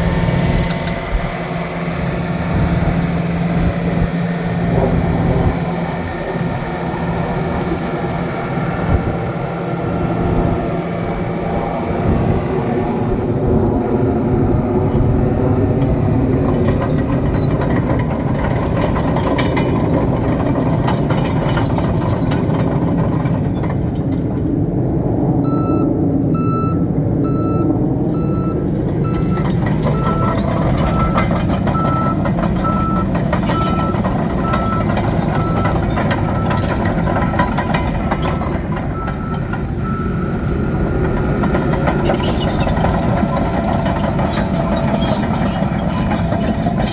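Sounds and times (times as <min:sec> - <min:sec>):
diesel engine running: 0:00.0 - 0:46.9
reverse alarm beeping: 0:25.4 - 0:35.8.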